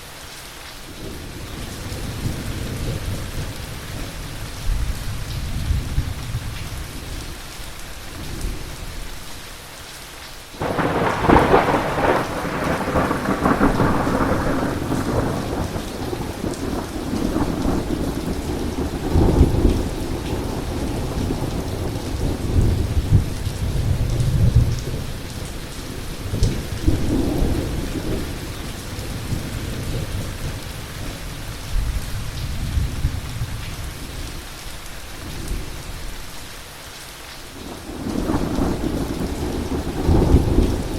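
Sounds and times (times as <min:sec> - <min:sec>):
heavy rain: 0:00.0 - 0:40.9
thunderclap rolling into rumble: 0:10.6 - 0:25.1, 0:37.9 - 0:40.9.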